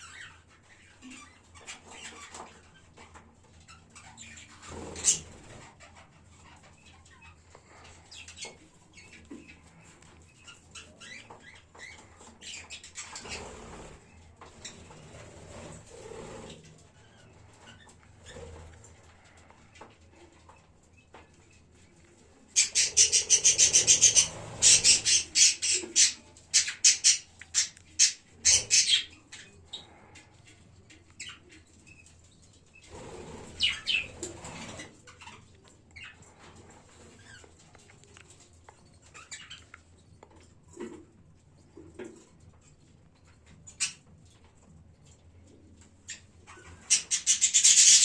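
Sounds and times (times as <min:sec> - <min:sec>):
budgerigars chirping: 0:22.6 - 0:29.9, 0:33.5 - 0:34.5, 0:46.1 - 0:48.0.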